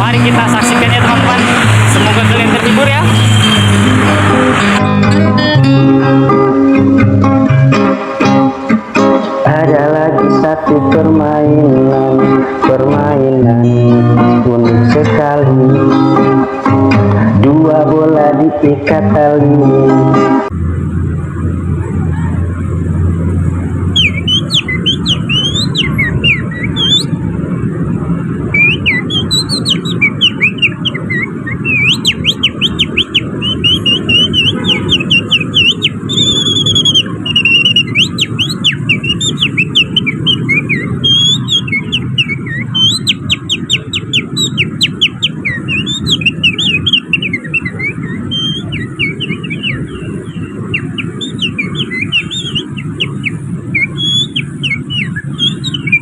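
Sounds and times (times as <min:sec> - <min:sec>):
finger whistling birdsong imitation: 0:02.7 - 0:04.0, 0:24.0 - 0:27.1, 0:28.5 - 0:56.0
low background rumble: 0:20.5 - 0:55.9.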